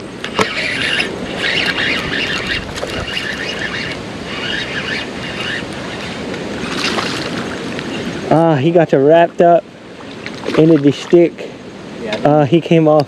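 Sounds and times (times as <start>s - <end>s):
fishing reel whirring: 0.0s - 8.2s
wind noise: 0.0s - 8.4s
rushing water: 0.0s - 13.0s.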